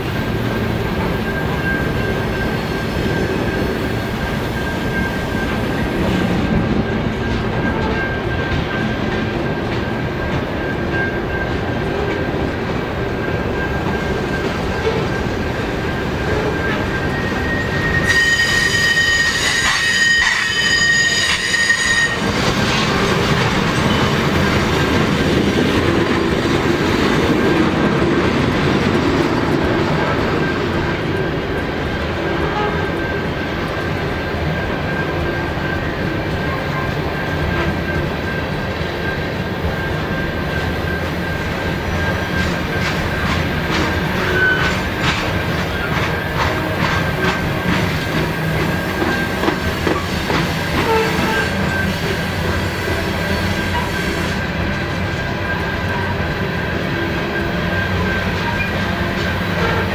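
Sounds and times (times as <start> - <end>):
train wheels on rail: 0.0 - 59.9
high wheel squeal: 13.2 - 25.4, 43.8 - 59.9.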